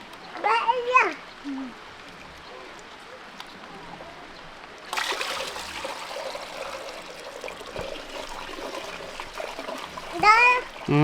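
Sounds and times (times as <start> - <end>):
water pouring and splashing: 4.9 - 11.0.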